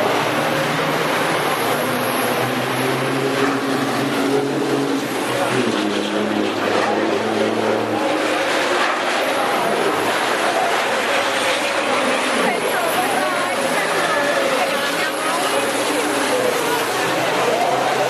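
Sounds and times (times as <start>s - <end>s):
steady wash of noise: 0.0s - 18.0s
truck diesel engines running: 0.0s - 18.0s.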